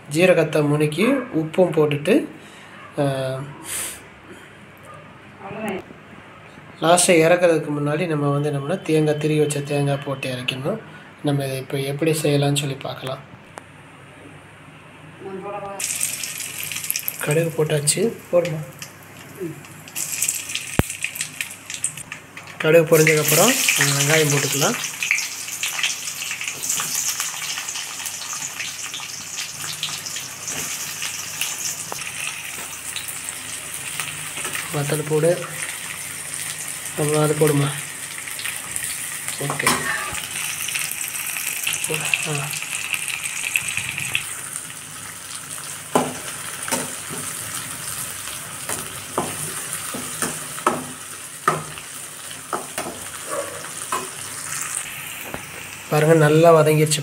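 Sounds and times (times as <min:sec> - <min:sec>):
shallots sizzling in hot oil: 0:15.8 - 0:57.0.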